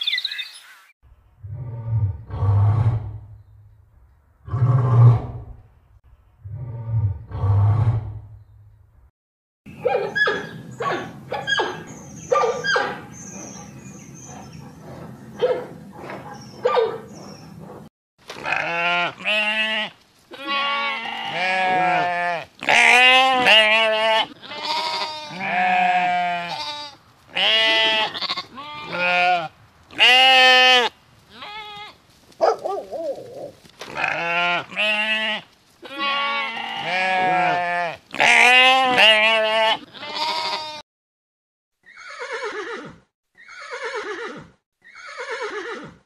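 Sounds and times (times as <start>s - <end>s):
sheep bleating: 18.4s - 32.0s, 33.9s - 40.8s.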